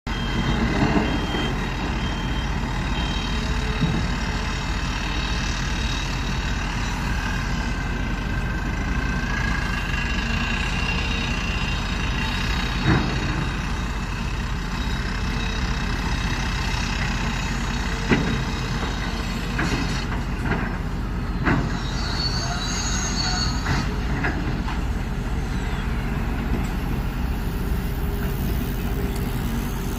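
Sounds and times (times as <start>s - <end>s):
excavator engine and hydraulics: 0.1s - 29.9s
high-pitched squeal: 21.4s - 29.9s.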